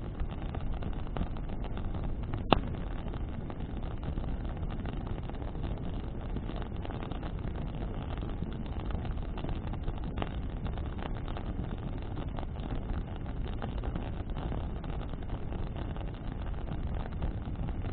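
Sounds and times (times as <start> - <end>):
burning wood crackling: 0.0 - 17.9
fire and wind rumble: 0.0 - 17.9.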